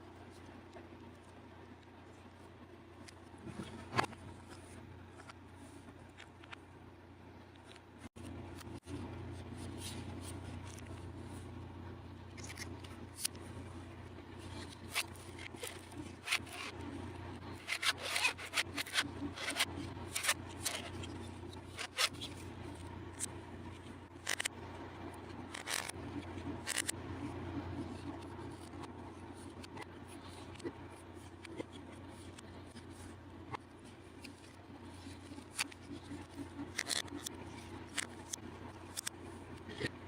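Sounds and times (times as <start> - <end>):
steady low hum: 0.0 - 40.0
short scrapes and clicks: 14.4 - 24.5, 25.4 - 40.0.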